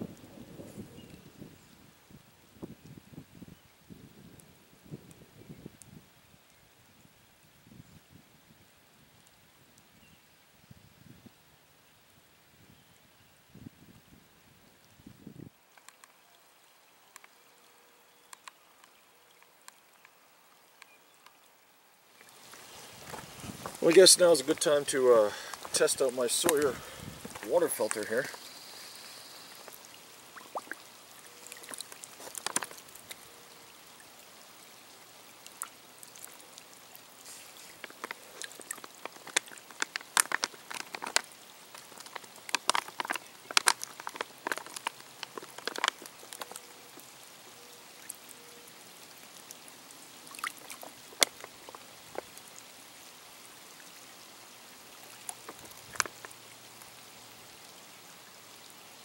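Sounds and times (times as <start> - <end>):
light rain hiss: 0.0 - 59.0
water splashing and trickling: 14.8 - 59.0.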